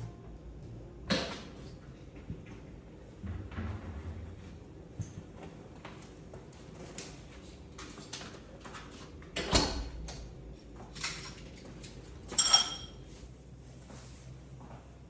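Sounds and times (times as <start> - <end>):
ringing ceramic clink: 12.3 - 13.0.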